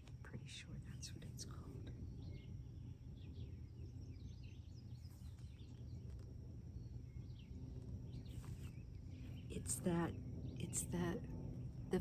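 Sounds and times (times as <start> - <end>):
faint bird chirps: 0.0 - 12.0
low outdoor rumble: 0.0 - 12.0.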